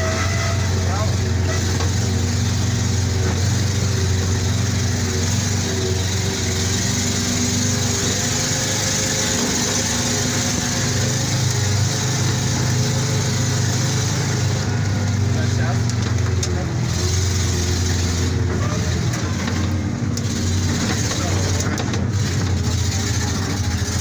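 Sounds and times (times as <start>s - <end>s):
heavy vehicle engine droning: 0.0s - 24.0s.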